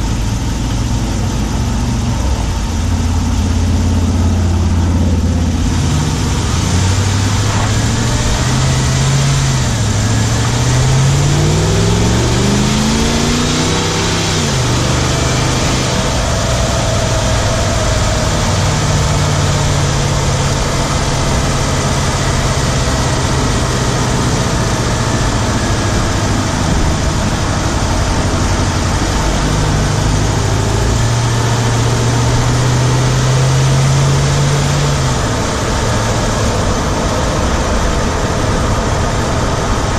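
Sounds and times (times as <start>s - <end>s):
engine running while driving: 0.0s - 39.9s.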